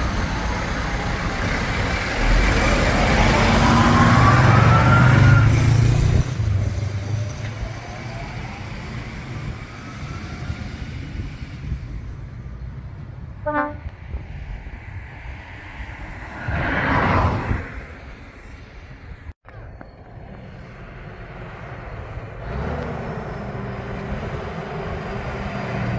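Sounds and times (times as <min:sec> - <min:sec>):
truck engine passing: 0:00.0 - 0:25.9
horn toot: 0:13.4 - 0:14.0
rush of noise: 0:13.7 - 0:22.3.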